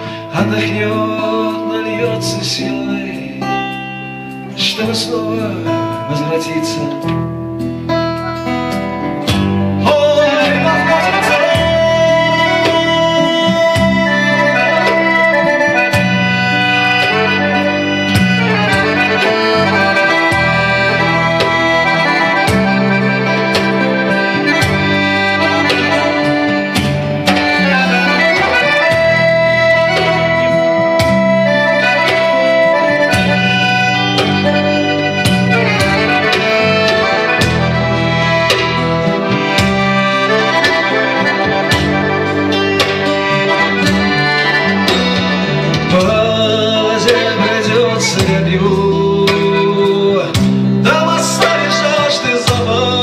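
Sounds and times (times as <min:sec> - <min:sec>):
accordion playing melody: 0:00.0 - 0:53.0
guitar accompaniment: 0:00.0 - 0:53.0
rhythmic bass: 0:00.0 - 0:53.0.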